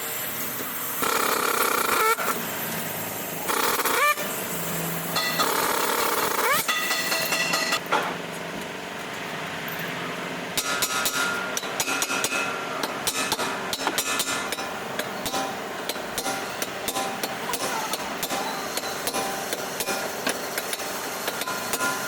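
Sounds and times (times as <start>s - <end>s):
hammer striking metal: 5.2s - 5.8s, 6.5s - 8.1s, 10.6s - 22.0s.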